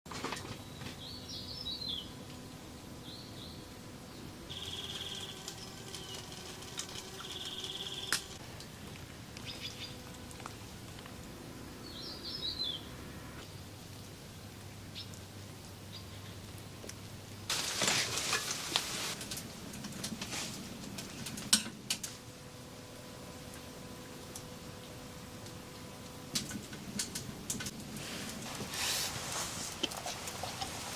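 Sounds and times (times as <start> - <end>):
steady high buzz: 0.8 - 13.5
scattered clicks: 4.6 - 8.7.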